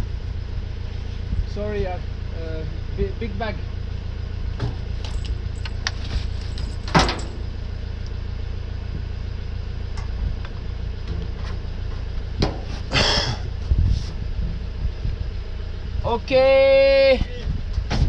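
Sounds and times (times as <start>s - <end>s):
vehicle engine rumbling: 0.0s - 18.0s
knocks and clunks: 4.6s - 7.5s, 11.0s - 13.4s, 17.7s - 18.0s.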